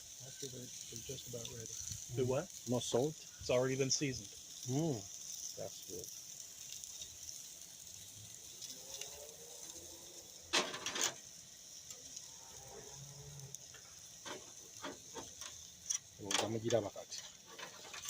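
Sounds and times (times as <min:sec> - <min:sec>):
steaks sizzling on a grill: 0:00.0 - 0:18.0
loud scrapes on grill: 0:08.6 - 0:11.3, 0:12.2 - 0:18.0.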